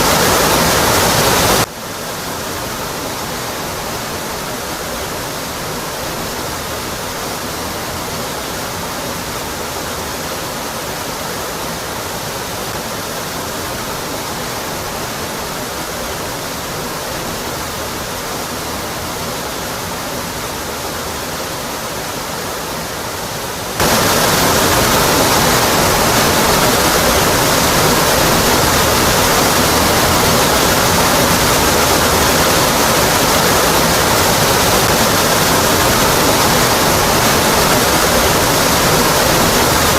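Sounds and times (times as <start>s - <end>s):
waterfall rushing onto rock: 0.0s - 39.9s.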